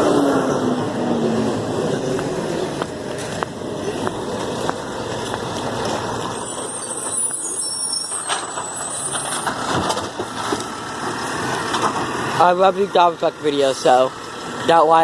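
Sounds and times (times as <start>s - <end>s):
garbage truck running: 0.0s - 15.0s
thin high squeal: 6.1s - 9.5s.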